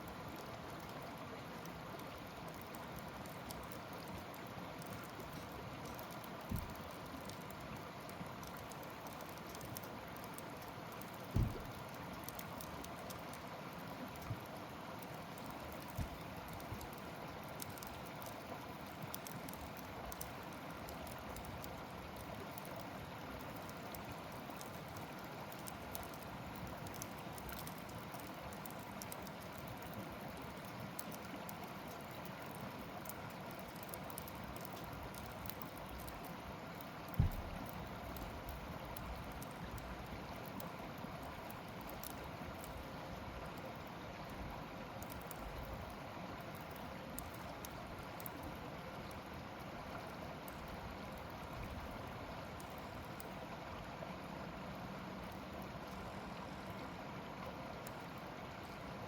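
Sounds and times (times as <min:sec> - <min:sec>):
wood crackling: 0:02.0 - 0:42.9
sharp pops of fire: 0:11.2 - 0:11.9, 0:37.1 - 0:37.6.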